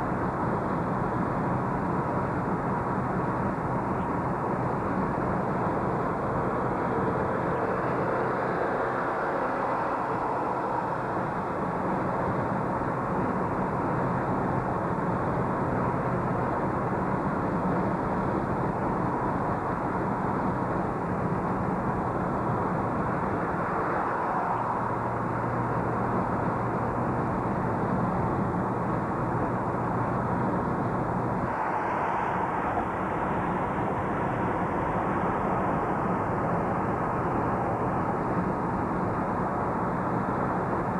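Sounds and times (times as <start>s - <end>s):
low engine hum: 0.0s - 40.9s
road noise inside moving car: 0.0s - 40.9s.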